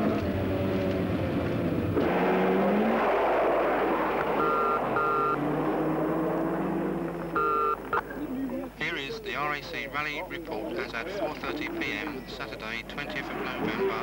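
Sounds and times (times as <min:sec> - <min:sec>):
rally car engine running: 0:00.0 - 0:08.0
car horn short beeps: 0:07.4 - 0:07.8.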